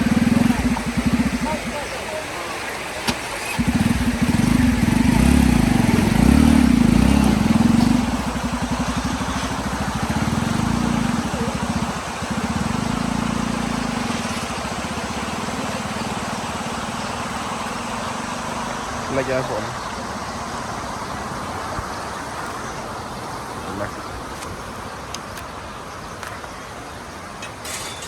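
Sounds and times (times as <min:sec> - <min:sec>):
small engine running: 0:00.0 - 0:20.7.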